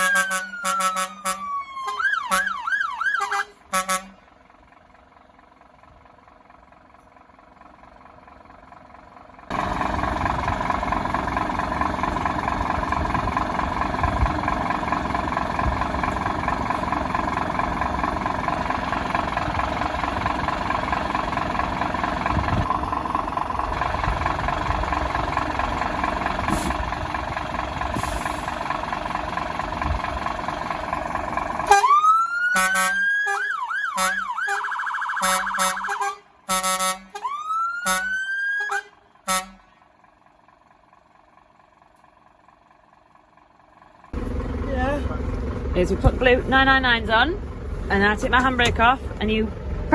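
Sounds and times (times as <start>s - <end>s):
fire engine siren: 0.0s - 4.2s, 31.6s - 39.8s.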